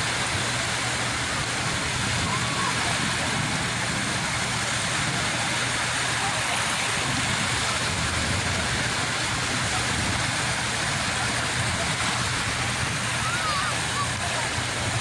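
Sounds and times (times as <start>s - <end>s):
sea waves rushing: 0.0s - 15.0s.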